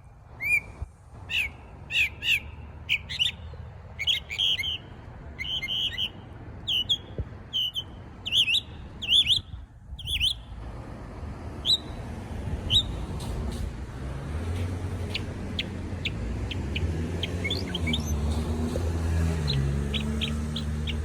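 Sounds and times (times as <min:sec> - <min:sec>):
songbird chirping: 0:00.4 - 0:10.5, 0:14.4 - 0:21.0.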